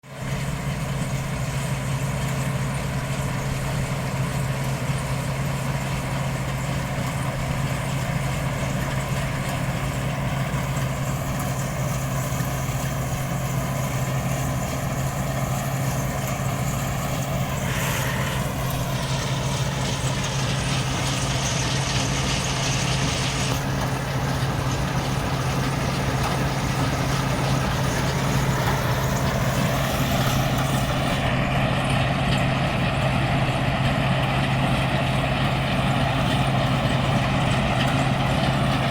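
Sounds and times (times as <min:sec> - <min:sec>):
diesel engine droning: 0:00.0 - 0:38.9
high rushing noise: 0:15.6 - 0:24.2.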